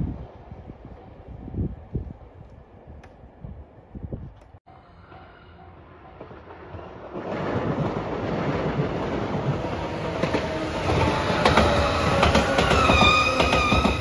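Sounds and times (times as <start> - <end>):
train passing close by: 0.0 - 2.8, 4.7 - 14.0
wheels clicking over rail joints: 6.2 - 14.0.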